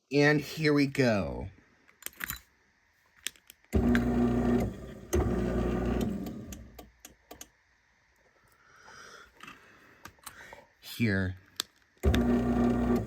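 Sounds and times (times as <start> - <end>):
garage door opener motor humming: 3.7 - 6.8, 12.0 - 13.0.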